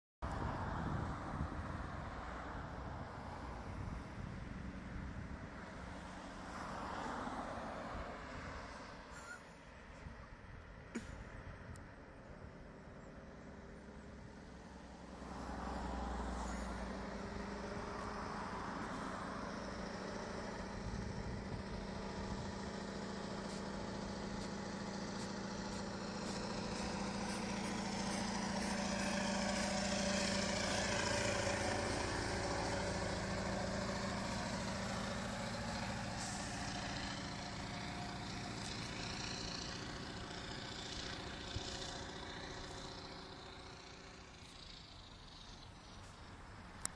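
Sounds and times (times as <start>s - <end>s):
truck diesel engine at full throttle: 12.4s - 46.9s.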